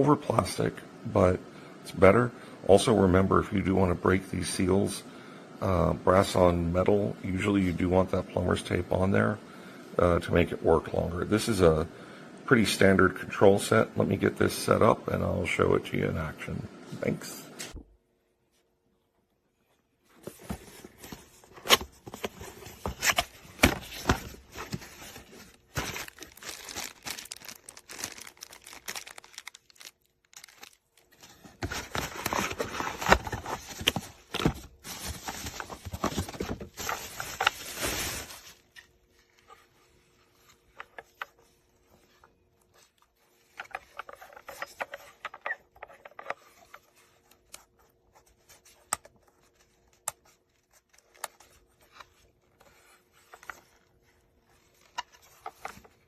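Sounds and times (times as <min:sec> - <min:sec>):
rustling and crinkling handling noise: 0:18.4 - 0:56.0.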